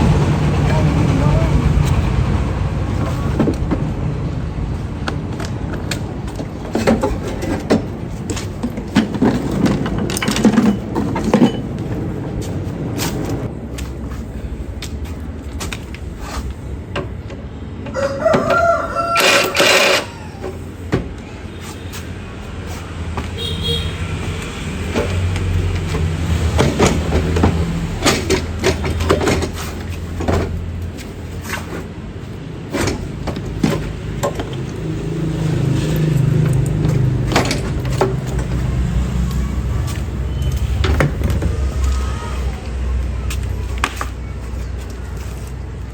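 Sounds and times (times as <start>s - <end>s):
rooster crowing: 17.9s - 20.4s.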